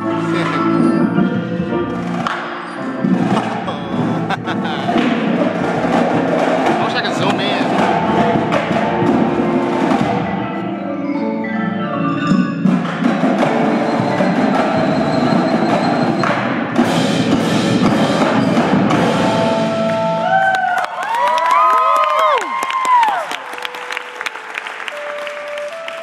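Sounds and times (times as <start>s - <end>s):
drums playing: 0.0s - 10.6s, 12.6s - 20.4s
marimbas and mallet keyboards: 0.0s - 20.2s
audience whistling: 13.1s - 16.4s.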